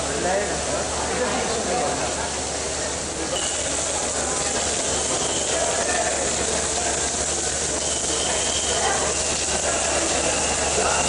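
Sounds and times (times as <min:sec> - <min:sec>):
heavy rain hissing: 0:00.0 - 0:11.0.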